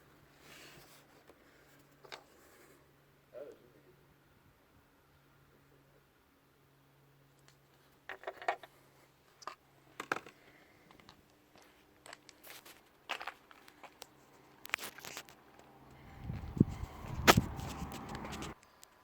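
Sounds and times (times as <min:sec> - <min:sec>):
low rumbling noise: 0:15.9 - 0:18.6.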